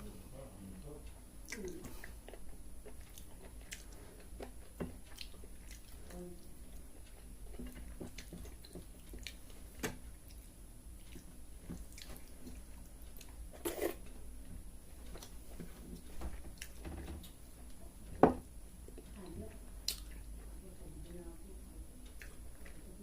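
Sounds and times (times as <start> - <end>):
person chewing wetly: 1.4 - 14.2, 19.9 - 20.4, 22.0 - 22.8
soft mouth clicks: 19.9 - 20.2.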